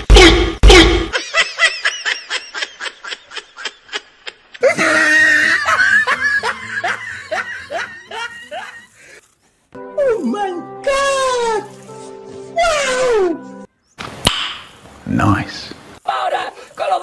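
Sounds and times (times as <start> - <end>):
person snickering laughter: 1.1 - 9.1.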